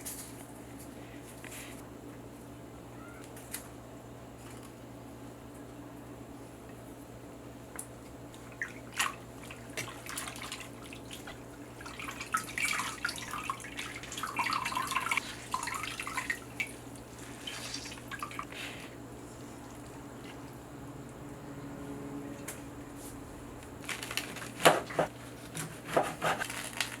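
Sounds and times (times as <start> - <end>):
soft wet squelches: 7.8 - 21.2
water dripping and splashing: 8.3 - 18.6.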